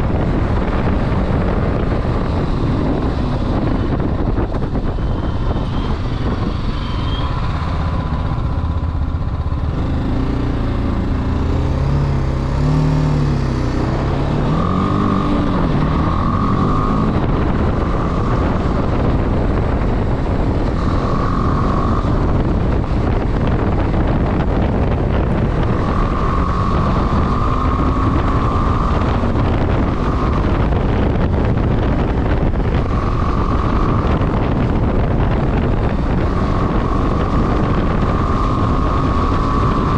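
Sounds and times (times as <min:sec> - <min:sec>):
motorcycle engine revving: 0:00.0 - 0:39.9
wind noise on microphone: 0:00.0 - 0:39.9
faint high whistle: 0:05.3 - 0:08.0.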